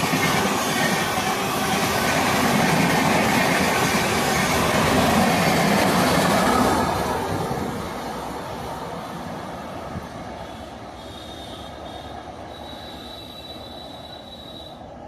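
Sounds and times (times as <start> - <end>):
passing train rumble: 0.0 - 15.0
high whistle-like tone: 10.5 - 14.9.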